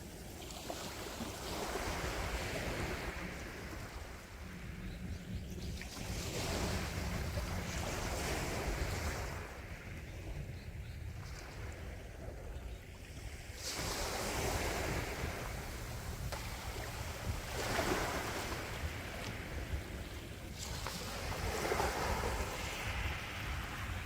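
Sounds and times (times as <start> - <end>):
sea waves washing onto shore: 0.0 - 4.6, 13.5 - 24.0.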